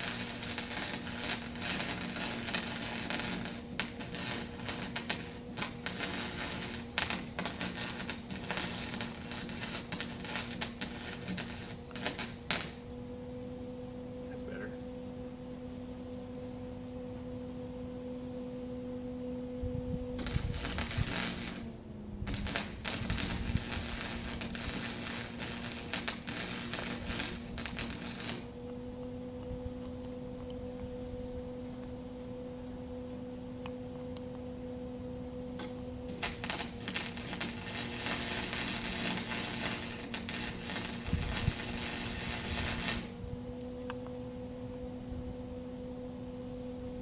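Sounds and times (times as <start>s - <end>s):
welding arc crackling: 0.0s - 12.9s, 20.2s - 28.8s, 33.5s - 43.2s
steady low hum: 0.0s - 47.0s.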